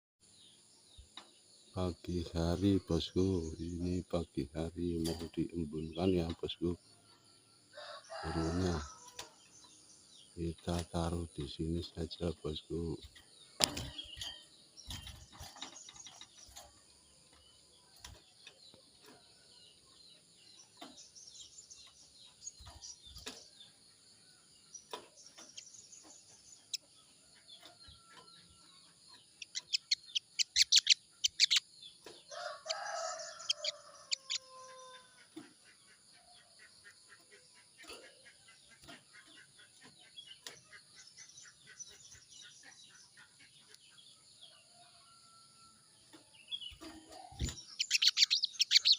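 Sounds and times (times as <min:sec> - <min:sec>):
small birds chirping: 0:00.2 - 0:48.9
rooster crowing: 0:07.8 - 0:09.1, 0:32.3 - 0:35.1.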